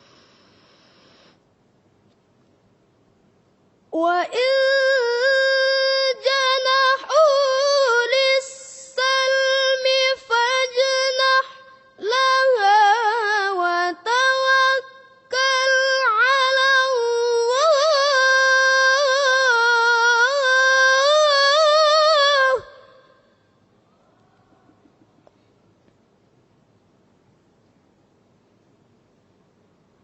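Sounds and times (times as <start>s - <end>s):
person reciting melodically: 4.0s - 23.2s.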